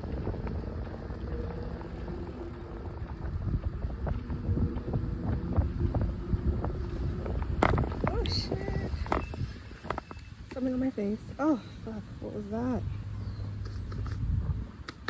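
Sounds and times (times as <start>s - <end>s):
bicycle clanks and rattles: 0.0s - 10.9s
tyres rumbling on path: 0.0s - 15.0s
wind buffeting microphone: 0.0s - 15.0s.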